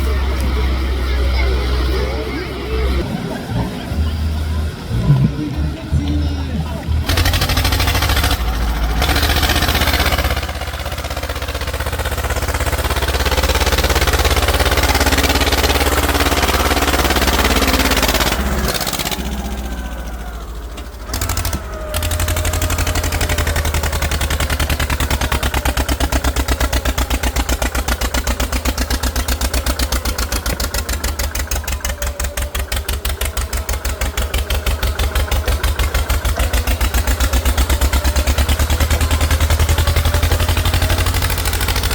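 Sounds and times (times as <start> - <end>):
tractor engine chugging: 0.0 - 41.9.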